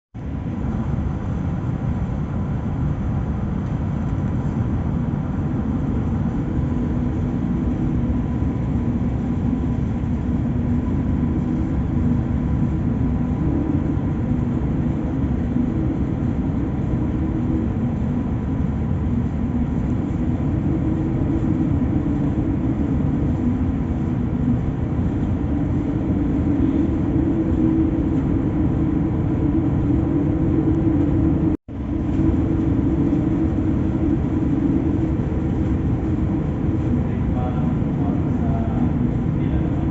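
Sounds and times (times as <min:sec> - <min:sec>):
steady hum: 0:00.2 - 0:39.9
strong wind rumbling: 0:00.2 - 0:39.9.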